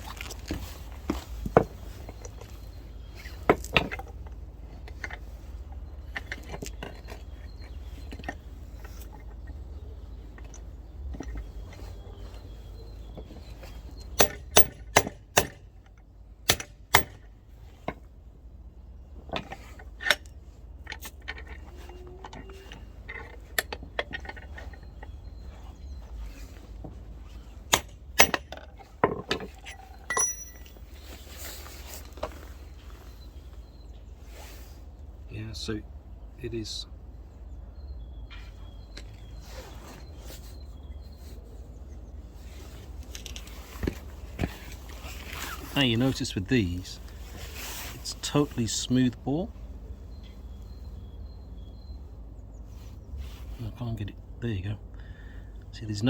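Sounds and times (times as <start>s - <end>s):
metal tools clinking: 28.2s - 31.2s.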